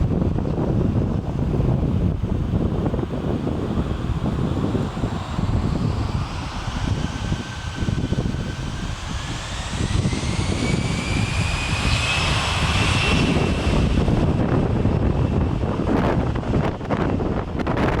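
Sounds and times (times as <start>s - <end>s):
jet engines whining: 0.0s - 18.0s
wind noise on microphone: 0.0s - 18.0s.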